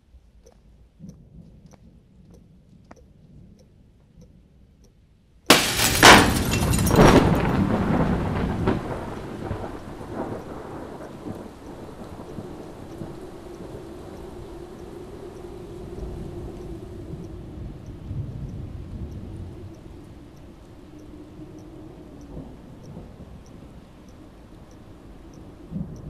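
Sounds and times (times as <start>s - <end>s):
loud rumbling crash: 5.5s - 9.0s.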